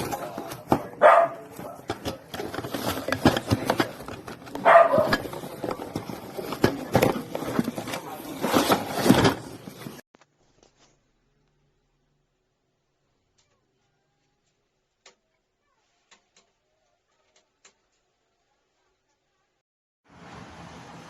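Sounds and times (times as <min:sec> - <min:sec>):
dog barking: 0:01.0 - 0:01.8, 0:04.6 - 0:05.2.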